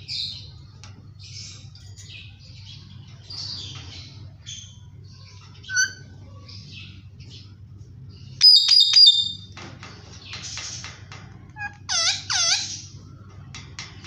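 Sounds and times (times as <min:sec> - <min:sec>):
parakeet chattering and chirping: 0:08.4 - 0:09.5, 0:10.3 - 0:13.0
parakeet squawk: 0:11.6 - 0:12.9.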